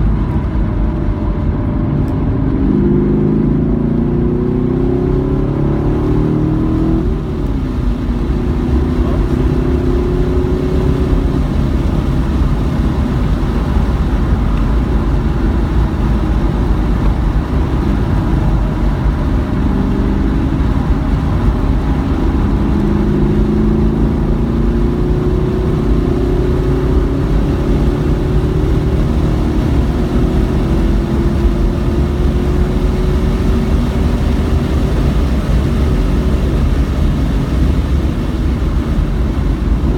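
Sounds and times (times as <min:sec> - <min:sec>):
car engine revving hard: 0:00.0 - 0:39.9
road noise: 0:00.0 - 0:39.9.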